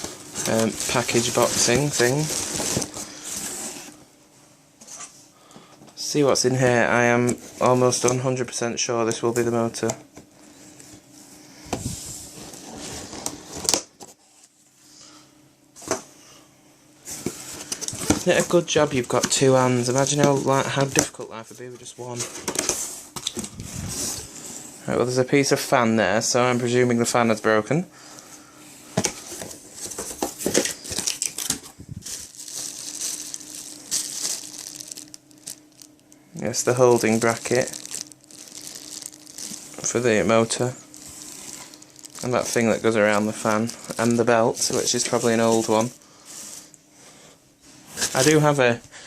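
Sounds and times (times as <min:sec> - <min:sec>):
sharp packaging crackles: 0:00.0 - 0:03.6, 0:29.4 - 0:46.0
packaging rustling: 0:00.0 - 0:04.0, 0:17.1 - 0:24.4, 0:29.0 - 0:46.8.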